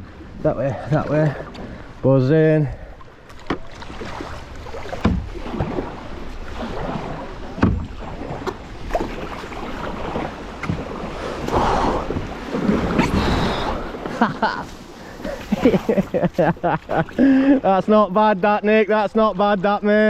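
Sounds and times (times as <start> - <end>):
water sloshing and splashing: 0.0 - 18.0
paddles knocking against hull: 3.0 - 17.3.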